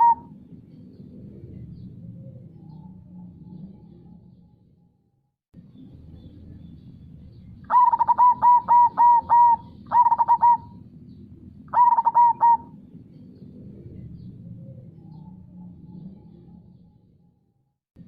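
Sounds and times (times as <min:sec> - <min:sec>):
dove cooing: 0:00.0 - 0:00.4, 0:07.7 - 0:10.8, 0:11.7 - 0:12.9.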